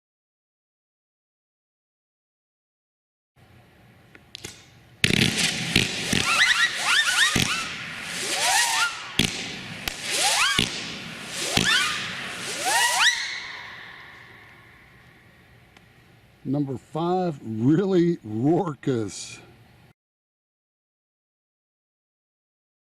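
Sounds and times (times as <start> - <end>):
faint fireworks pops: 4.3 - 13.1
fireworks launches and bursts: 4.4 - 14.8
rising fireworks whistles: 5.0 - 15.3.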